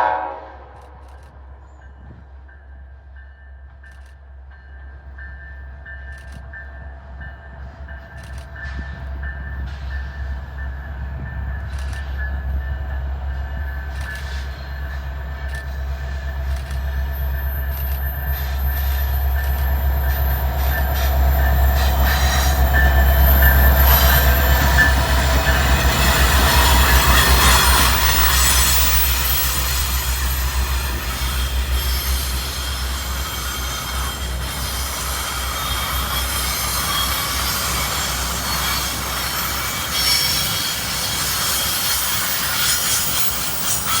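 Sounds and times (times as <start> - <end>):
train wheels rolling: 0.0 - 44.0
locomotive engine rumble: 5.0 - 44.0
wheels squealing: 13.6 - 44.0.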